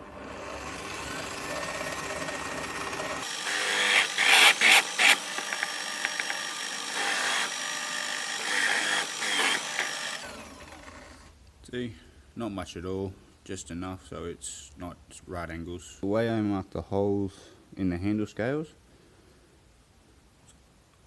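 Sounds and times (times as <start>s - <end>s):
drill press cutting steel: 0.1s - 11.0s.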